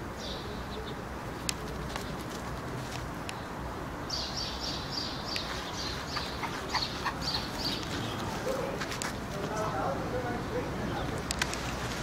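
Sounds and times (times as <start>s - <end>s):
low background noise: 0.0s - 12.0s
small bird chirping: 3.3s - 8.6s.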